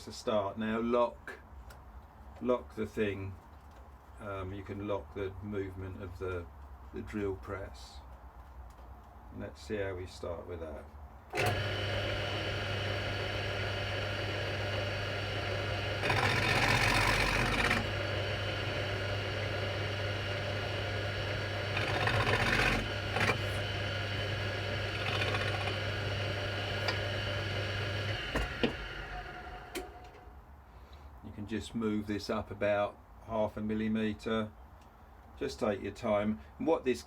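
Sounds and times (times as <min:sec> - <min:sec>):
cutter planing wood: 0:11.3 - 0:30.2
drill press running: 0:11.3 - 0:30.3.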